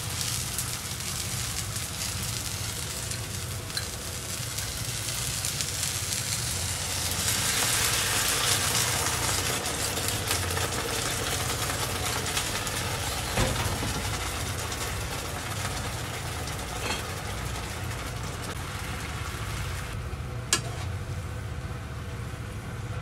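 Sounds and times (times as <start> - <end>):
eggplant sizzling in oil: 0.0 - 20.0.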